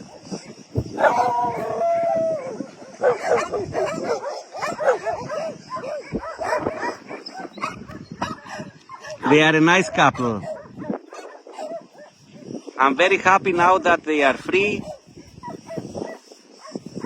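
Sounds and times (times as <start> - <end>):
dogs barking and yipping: 0.0 - 12.7, 13.5 - 17.0
dog whining: 1.0 - 9.0.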